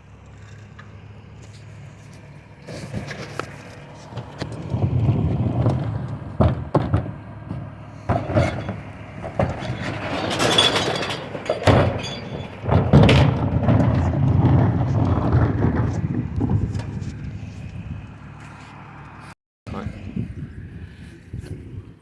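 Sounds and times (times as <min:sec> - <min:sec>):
truck engine running: 0:00.0 - 0:21.4
clanks and crashing clatter: 0:02.6 - 0:17.8.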